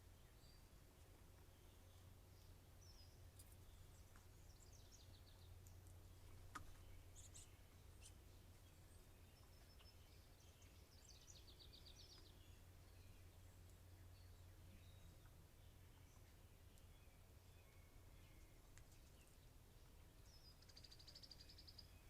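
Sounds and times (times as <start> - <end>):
faint songbird calls: 0.0 - 22.0.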